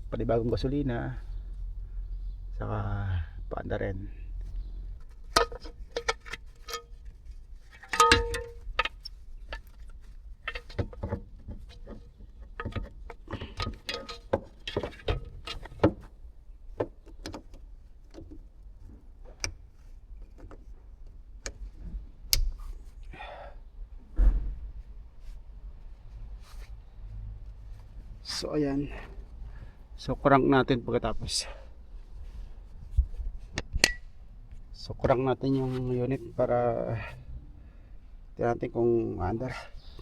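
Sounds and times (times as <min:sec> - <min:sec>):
hand tools clicking and clinking: 0:05.3 - 0:06.9, 0:07.7 - 0:09.7, 0:10.4 - 0:15.8.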